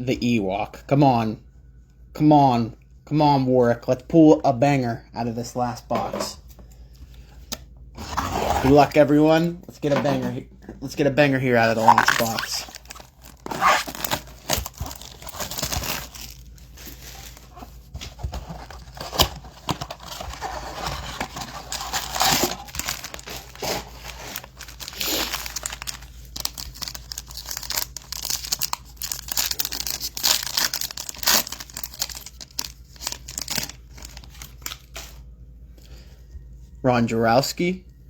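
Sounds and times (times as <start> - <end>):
card wrappers crinkling and tearing: 11.6 - 35.2.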